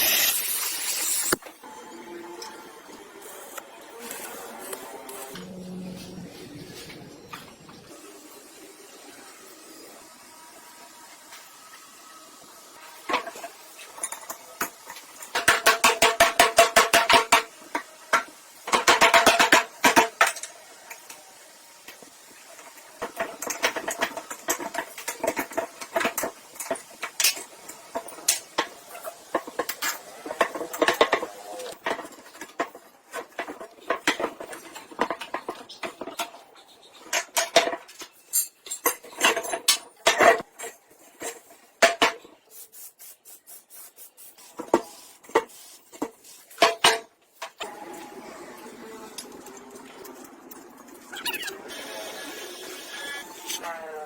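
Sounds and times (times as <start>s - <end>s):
metal tools clinking and scraping: 29.8s - 41.6s.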